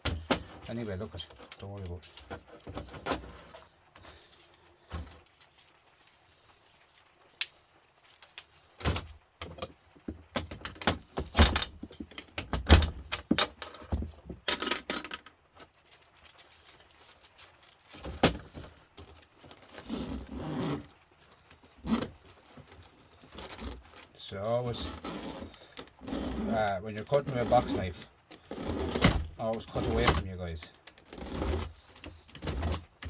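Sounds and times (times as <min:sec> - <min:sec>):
metal scrap clinking and rattling: 0:08.0 - 0:19.8.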